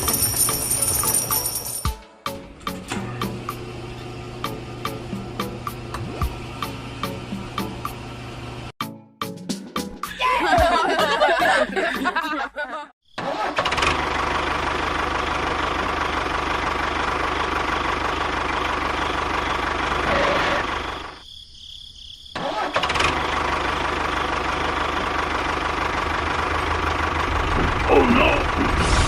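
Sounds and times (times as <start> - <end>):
engine running: 2.3 - 8.7, 13.4 - 21.2, 22.4 - 29.0.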